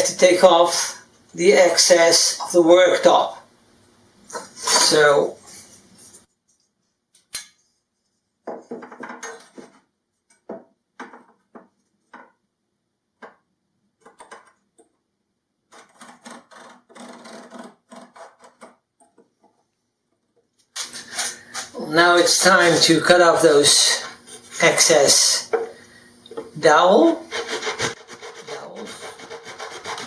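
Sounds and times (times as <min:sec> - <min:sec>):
tools clattering and scraping: 0:08.5 - 0:09.8
quick rubbing strokes: 0:27.3 - 0:30.0.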